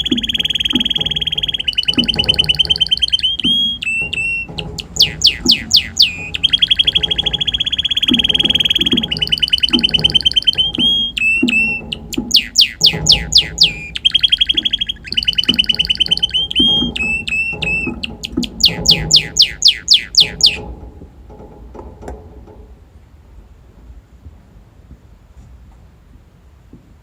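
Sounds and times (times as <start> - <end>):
canary singing trills: 0.0 - 20.7.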